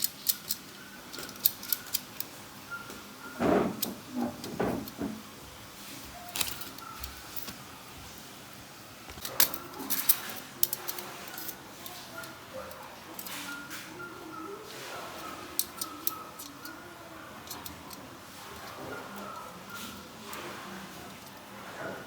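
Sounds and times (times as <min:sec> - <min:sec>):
clicks and clinks of handled tools: 0:06.3 - 0:07.6.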